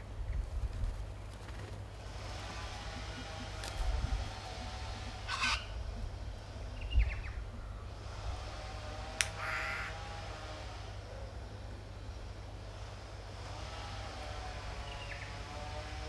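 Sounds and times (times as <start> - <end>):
steady low rumble: 0.0 - 8.9
crow cawing: 2.5 - 6.3, 9.3 - 10.0.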